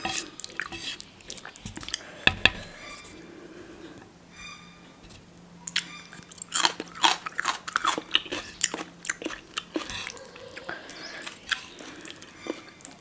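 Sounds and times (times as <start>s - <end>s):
chewing food crunches: 5.7s - 13.0s.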